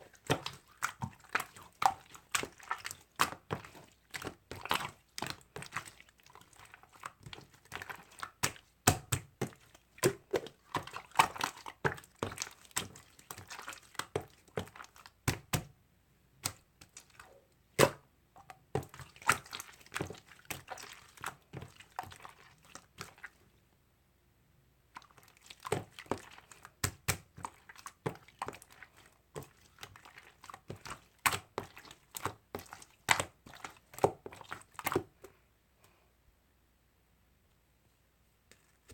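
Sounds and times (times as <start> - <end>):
slime squishing and crackling: 0.0 - 15.7, 25.0 - 35.1.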